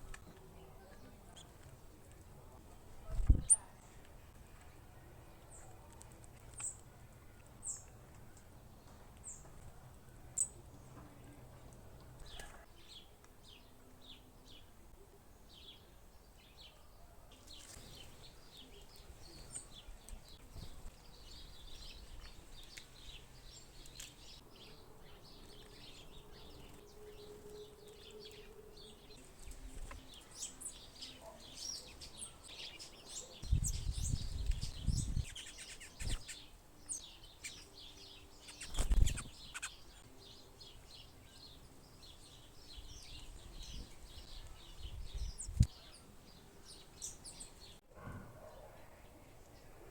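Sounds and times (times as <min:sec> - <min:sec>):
small birds chirping: 0:00.0 - 0:47.8.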